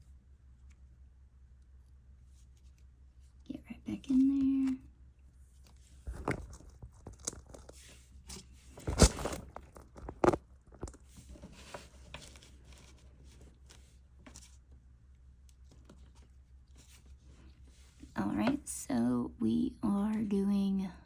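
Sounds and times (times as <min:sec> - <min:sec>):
yarn rustling and scraping: 0:05.3 - 0:14.7, 0:15.6 - 0:18.2.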